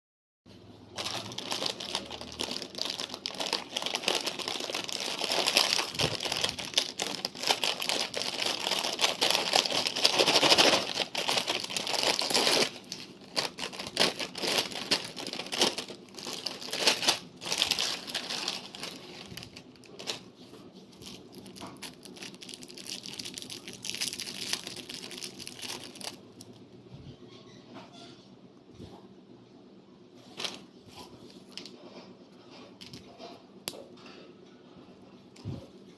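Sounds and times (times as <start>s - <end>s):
plastic packaging crinkling: 0.9s - 26.6s.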